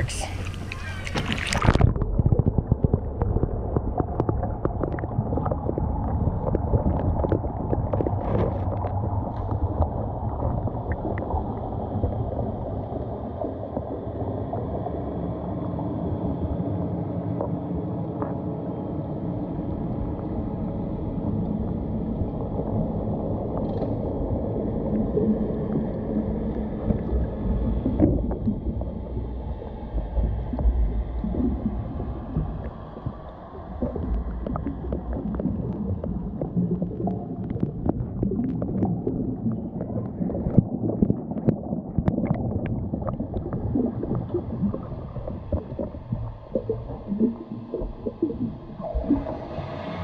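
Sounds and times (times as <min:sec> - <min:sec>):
underwater rush and gurgle: 0:00.0 - 0:50.0.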